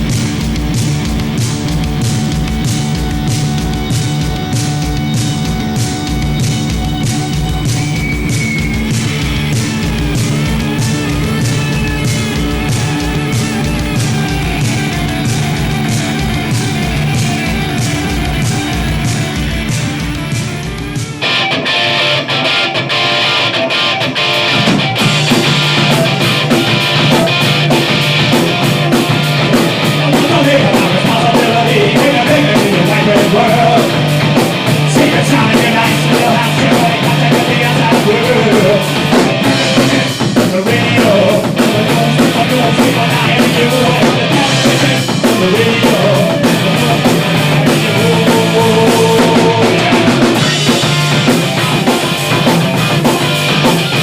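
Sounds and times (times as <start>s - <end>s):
distorted electric guitars: 0.0s - 54.0s
drum kit: 0.0s - 54.0s.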